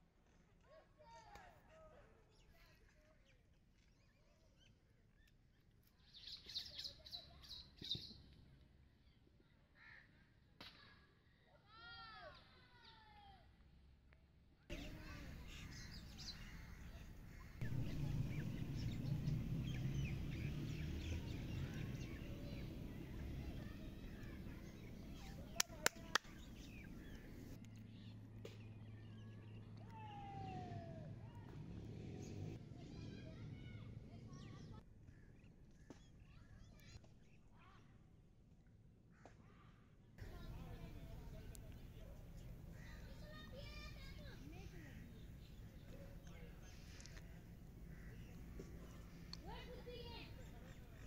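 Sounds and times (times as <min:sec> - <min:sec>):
faint bird chirps and whistles: 0:06.0 - 0:08.3
steady low hum: 0:14.7 - 0:27.6
faint bird calls: 0:14.7 - 0:31.4, 0:40.2 - 0:51.0.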